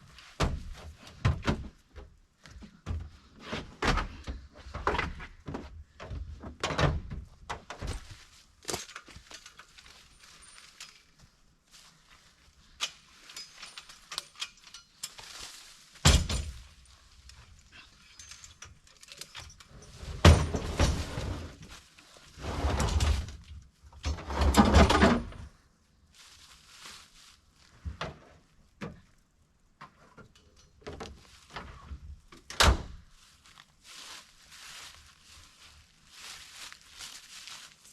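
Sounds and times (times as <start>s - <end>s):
scraping and rustling: 8.0s - 23.5s, 33.1s - 37.9s.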